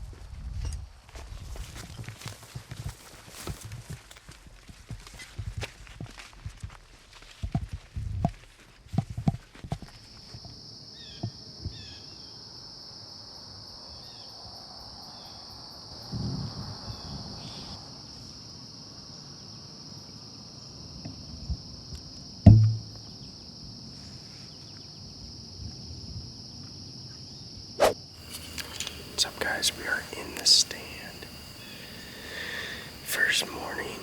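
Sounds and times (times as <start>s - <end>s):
insects trilling: 9.8s - 34.0s
loud dull thump: 22.5s - 23.0s.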